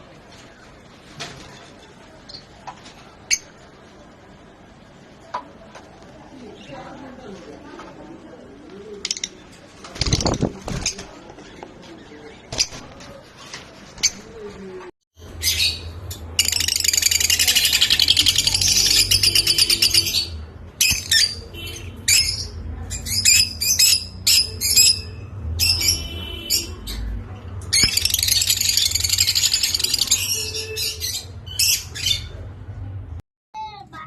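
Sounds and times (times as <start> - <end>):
lovebirds chattering: 15.4 - 32.4.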